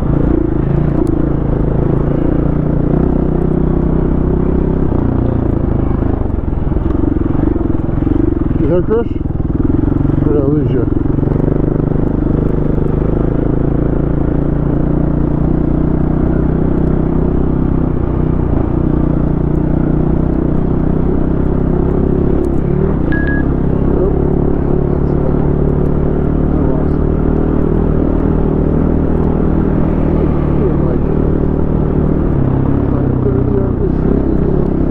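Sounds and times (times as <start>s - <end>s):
dirt bike engine running: 0.0s - 34.9s
short high tone: 23.1s - 23.6s.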